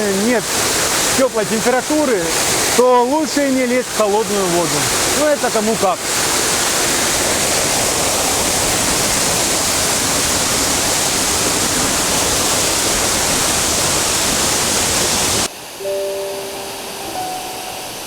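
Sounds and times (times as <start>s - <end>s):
waterfall rushing: 0.0s - 18.0s
soft music with held notes: 15.8s - 18.0s.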